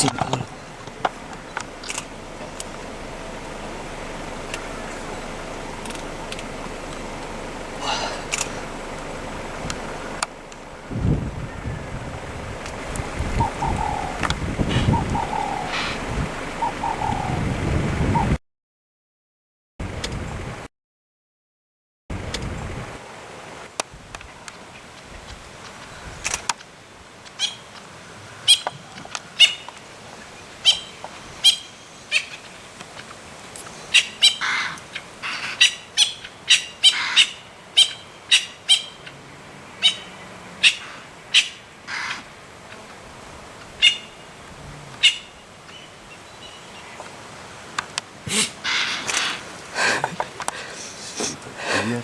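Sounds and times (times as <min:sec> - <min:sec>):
birds chirping: 0:00.0 - 0:18.4, 0:25.8 - 0:52.0
lower bird calls: 0:00.0 - 0:18.4, 0:27.3 - 0:43.0, 0:43.6 - 0:47.2, 0:48.2 - 0:52.0.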